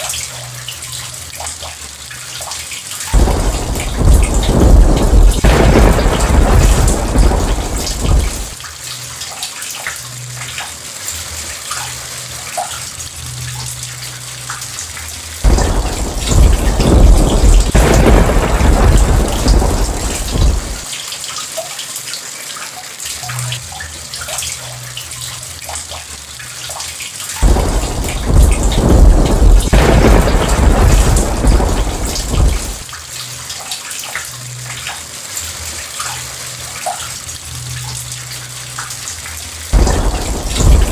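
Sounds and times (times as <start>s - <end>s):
heavy rain: 2.4s - 25.8s, 26.4s - 40.9s
thunder rumbling: 3.2s - 8.6s, 15.4s - 20.9s, 27.4s - 32.9s, 39.8s - 40.9s.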